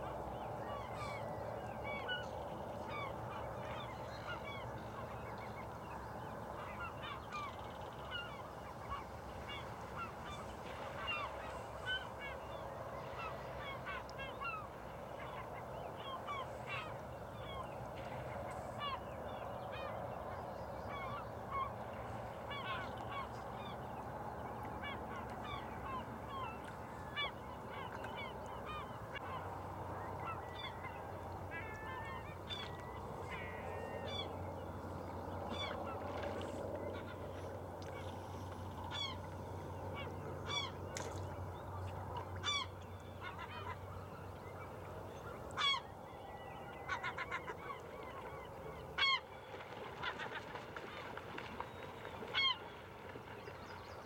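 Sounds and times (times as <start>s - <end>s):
birds calling: 24.6s - 54.0s.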